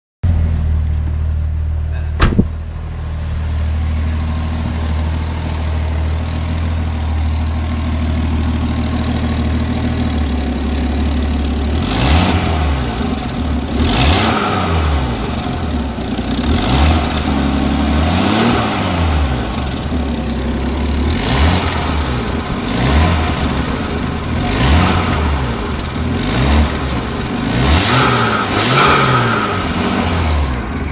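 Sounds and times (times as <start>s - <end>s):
car engine idling and revving: 0.2s - 30.9s
sharp knock: 2.2s - 2.6s.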